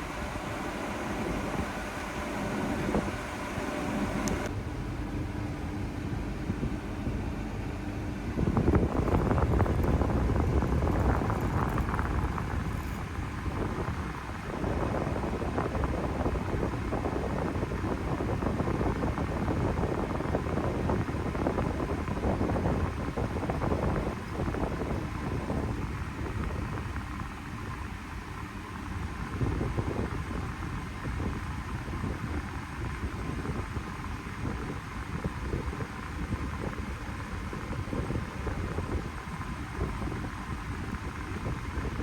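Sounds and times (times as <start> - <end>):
small vehicle engine running: 0.0 - 4.6, 8.4 - 15.9
wind noise on microphone: 0.0 - 4.6, 5.2 - 42.0.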